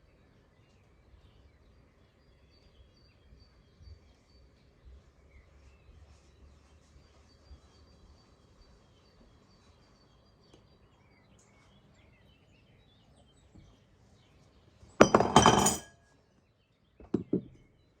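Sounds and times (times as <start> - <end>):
hard objects clattering: 15.0 - 15.9, 17.0 - 17.6.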